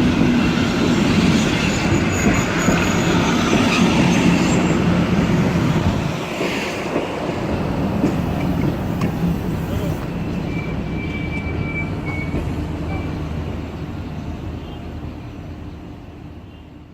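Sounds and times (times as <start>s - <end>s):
train wheels clattering over rails: 0.0s - 13.1s
high wheel squeal: 9.7s - 13.2s.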